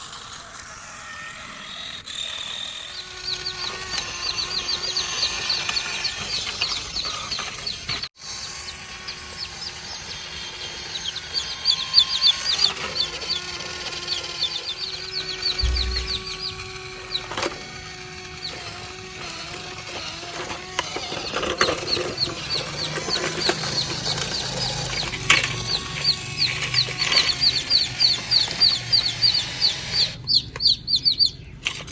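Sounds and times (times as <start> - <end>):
birds chirping: 2.5 - 31.9
steady whine: 8.6 - 29.4
sharp knocks: 15.5 - 17.8.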